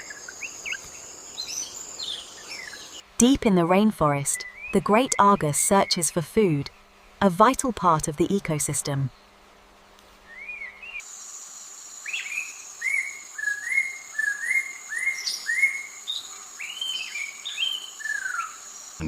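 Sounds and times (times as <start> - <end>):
high-pitched insect drone: 11.1 - 14.1.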